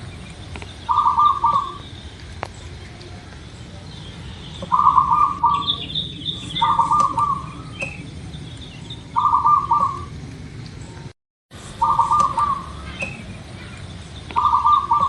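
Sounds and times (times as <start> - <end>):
small birds chirping: 0.0 - 15.0
dove cooing: 0.9 - 2.0, 4.6 - 8.1, 9.1 - 10.2, 11.8 - 13.7, 14.3 - 15.0.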